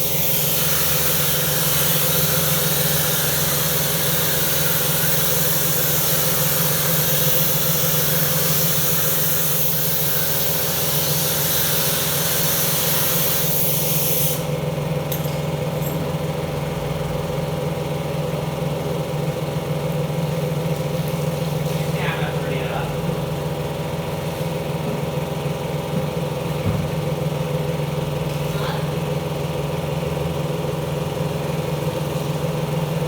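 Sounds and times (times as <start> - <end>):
pressure washer spraying: 0.0 - 14.5.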